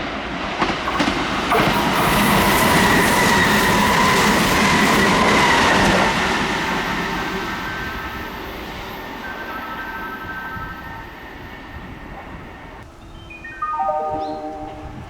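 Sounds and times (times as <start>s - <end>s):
train passing: 0.0s - 15.0s
high whine: 13.3s - 15.0s.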